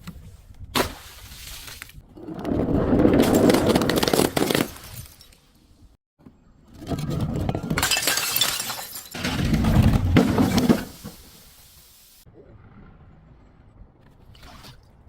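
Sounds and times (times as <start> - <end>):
glass breaking and crunching: 3.3 - 5.5, 7.6 - 11.0.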